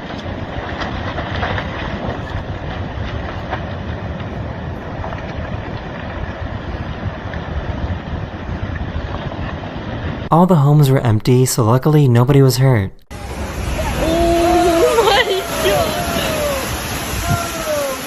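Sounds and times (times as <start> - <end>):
rumbling rush of landslide: 0.0 - 10.3, 13.1 - 18.0.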